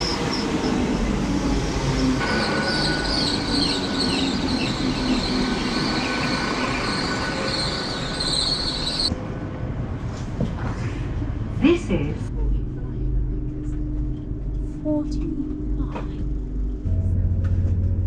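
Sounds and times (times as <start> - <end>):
train rumbling on rails: 0.0 - 18.0
wheel squeal: 2.0 - 9.1.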